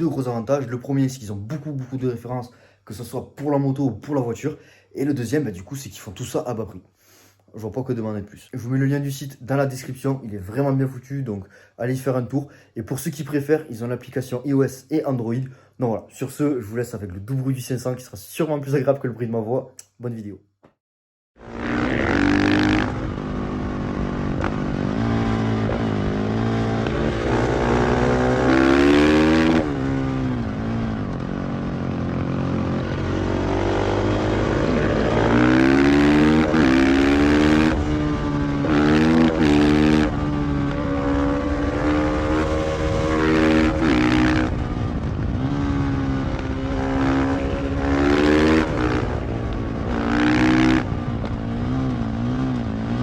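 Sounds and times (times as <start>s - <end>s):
motorcycle engine revving: 21.4s - 53.0s.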